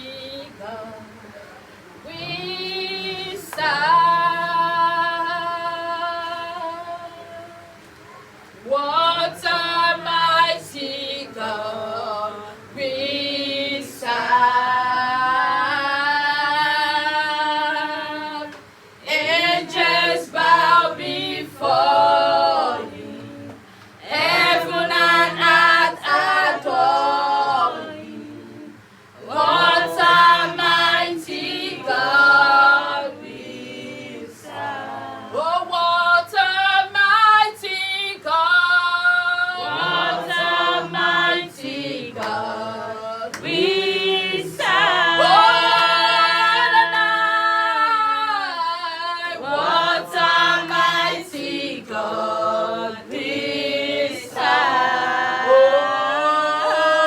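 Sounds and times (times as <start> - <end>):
choir singing a worship song: 0.0 - 1.2, 2.0 - 7.7, 8.6 - 57.0
singers breathing: 23.6 - 24.0.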